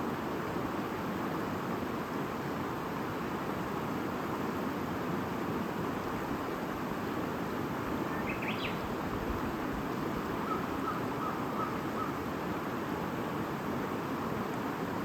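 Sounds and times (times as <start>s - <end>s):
bird chirps: 8.1s - 8.8s.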